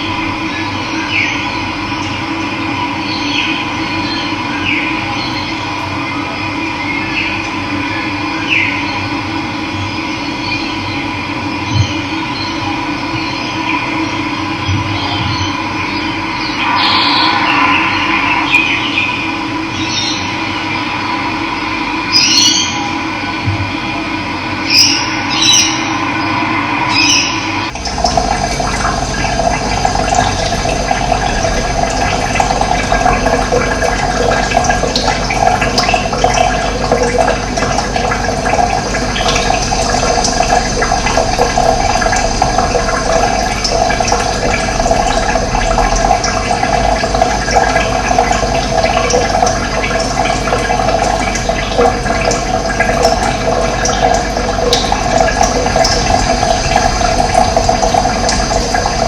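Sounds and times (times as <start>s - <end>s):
running water rushing: 16.3s - 21.1s, 24.7s - 59.0s.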